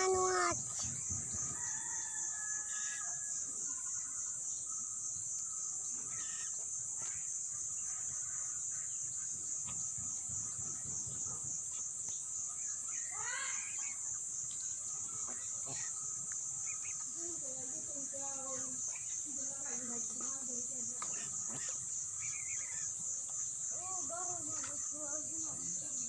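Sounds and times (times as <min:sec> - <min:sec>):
insects chirring: 0:00.0 - 0:26.0
faint bird calls: 0:01.8 - 0:09.8, 0:14.8 - 0:25.7.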